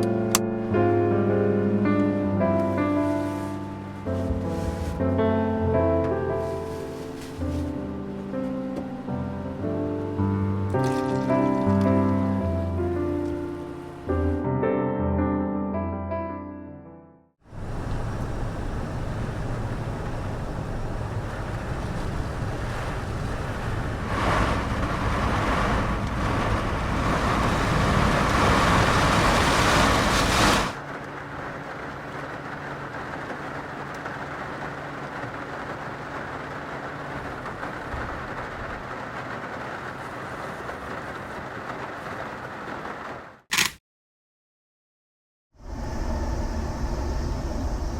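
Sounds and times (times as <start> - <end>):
heavy rain: 0.0 - 14.4, 17.4 - 43.5.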